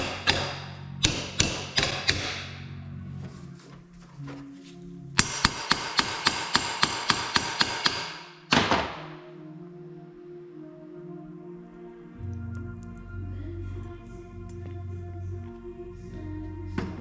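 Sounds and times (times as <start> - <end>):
hammer striking metal: 0.0 - 2.7, 5.2 - 9.2.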